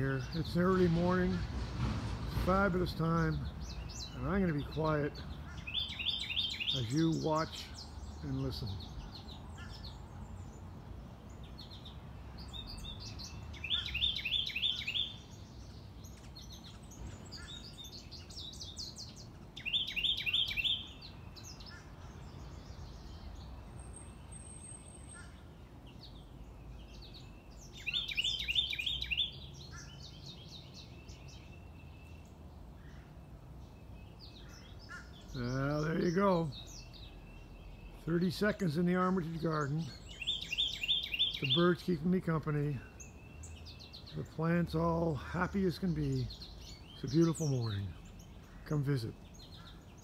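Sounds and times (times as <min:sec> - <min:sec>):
songbird phrases of falling notes: 0:00.0 - 0:01.4, 0:02.3 - 0:09.8, 0:34.0 - 0:49.8
soft bird chirps: 0:03.0 - 0:50.0.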